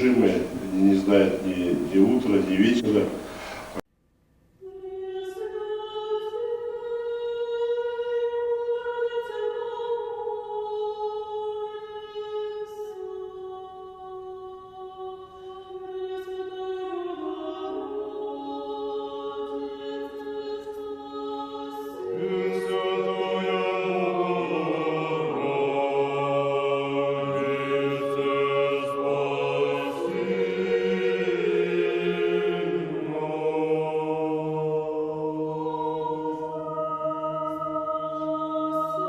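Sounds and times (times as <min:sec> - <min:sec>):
choir singing chant-like chords: 0:00.0 - 0:03.8, 0:16.8 - 0:39.0.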